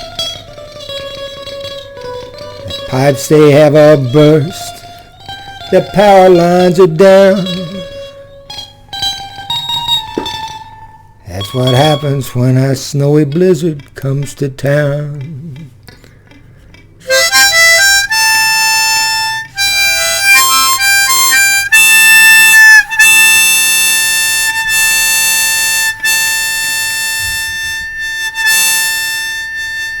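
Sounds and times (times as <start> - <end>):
harmonica playing: 2.0 - 10.3, 17.0 - 30.0.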